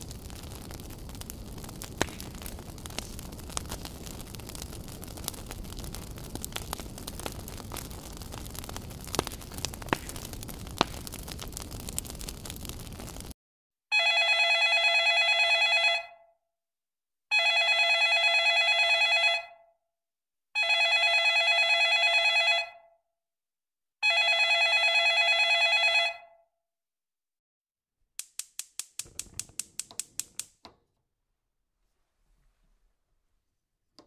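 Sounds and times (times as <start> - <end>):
telephone ringing: 13.9 - 16.2, 17.3 - 19.6, 20.6 - 22.8, 24.0 - 26.3
sharp clicks: 28.2 - 30.8.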